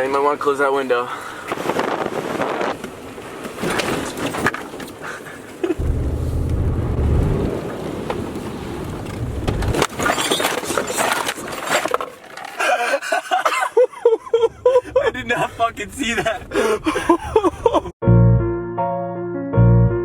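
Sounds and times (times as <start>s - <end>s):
truck engine rumbling: 5.7s - 10.4s, 14.3s - 18.0s.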